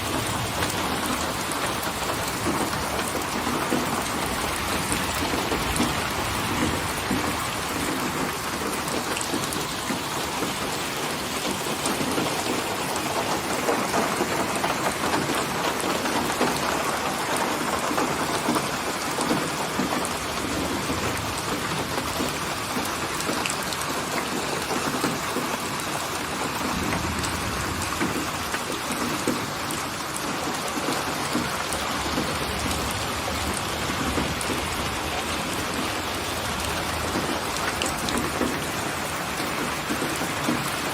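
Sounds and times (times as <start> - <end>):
low rumble of thunder: 0.0 - 9.5, 26.3 - 40.9
steady rain falling: 0.0 - 40.9.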